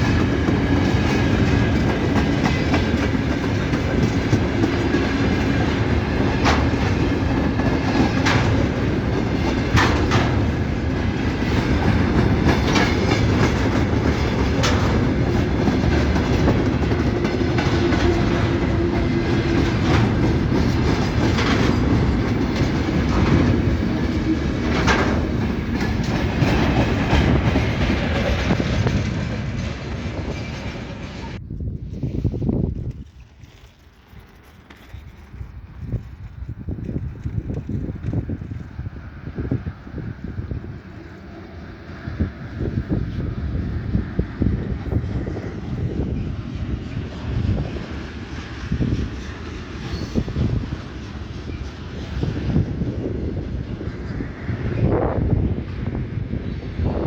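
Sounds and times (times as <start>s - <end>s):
wheels clicking over rail joints: 0.0s - 31.4s
train wheels rumbling: 0.0s - 57.0s.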